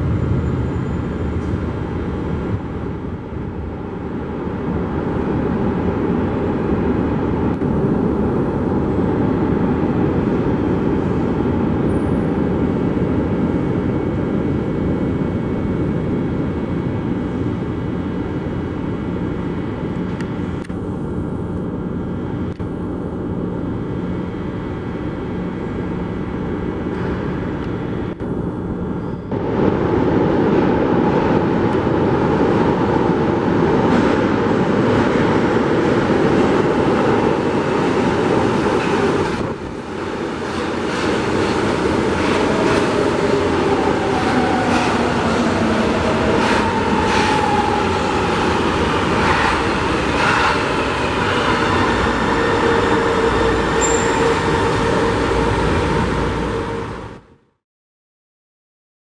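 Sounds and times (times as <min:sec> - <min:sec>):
metro train rumble: 0:00.0 - 0:57.5.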